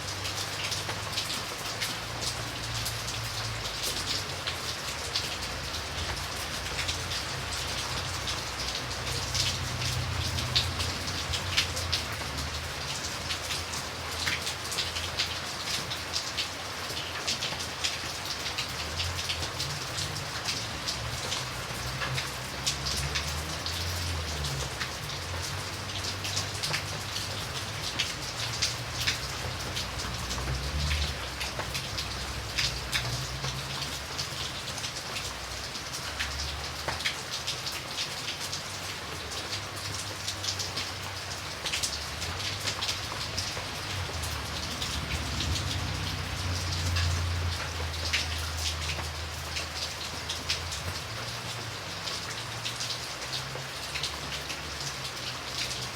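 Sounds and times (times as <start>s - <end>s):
raindrops ticking on a surface: 0.0s - 55.9s
steady rain falling: 0.0s - 55.9s.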